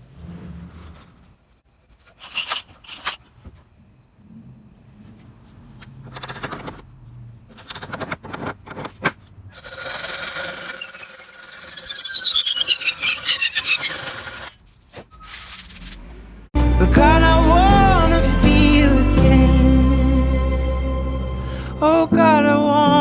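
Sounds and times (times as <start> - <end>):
high squeal sliding down: 9.8 - 14.5.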